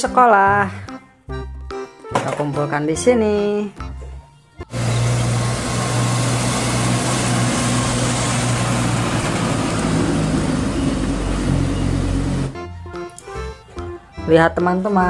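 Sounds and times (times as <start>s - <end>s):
bus engine humming: 4.7s - 12.6s
loud rushing noise: 4.8s - 12.6s.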